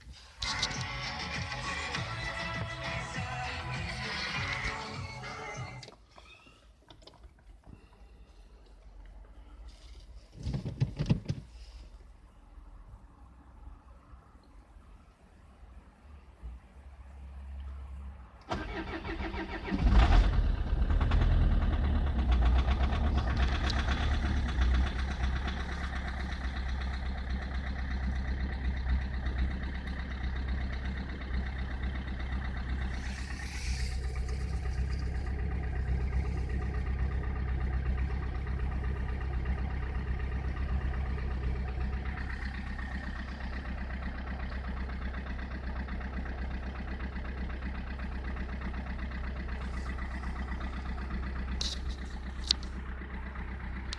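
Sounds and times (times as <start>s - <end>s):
diesel engine cranking and starting: 0.0s - 12.7s, 18.4s - 53.9s
diesel engine idling: 0.1s - 10.3s, 18.4s - 53.9s
brief hiss: 33.0s - 34.5s.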